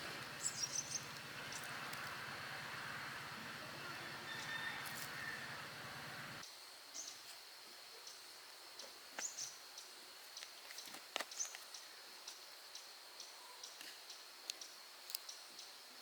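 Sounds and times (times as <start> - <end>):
loud noisy background: 0.0 - 6.4.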